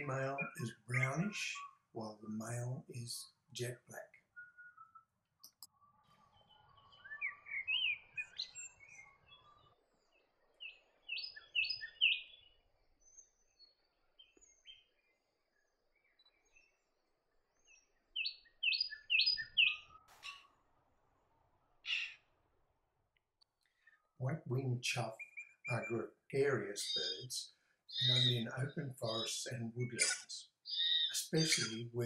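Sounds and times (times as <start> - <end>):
blackbird singing: 0.0 - 5.1, 5.8 - 9.8, 10.6 - 15.2, 17.6 - 20.4, 21.8 - 22.2, 23.8 - 32.0.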